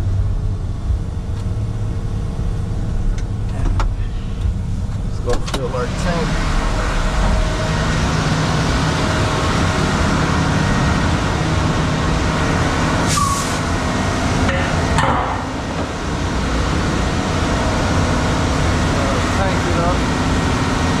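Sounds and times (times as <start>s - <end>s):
concrete mixer truck running: 0.0s - 21.0s
short air hisses: 13.1s - 13.7s.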